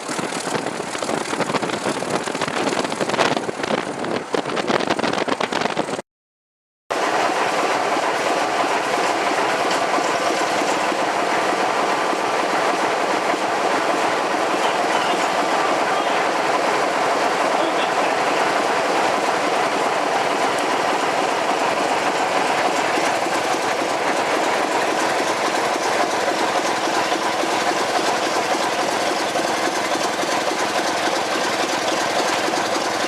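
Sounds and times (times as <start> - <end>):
train wheels clattering: 7.0 - 33.0.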